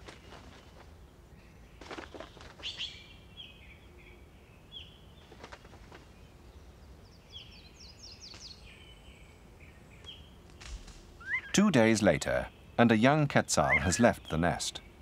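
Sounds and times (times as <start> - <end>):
birds whistling notes: 11.2 - 15.0.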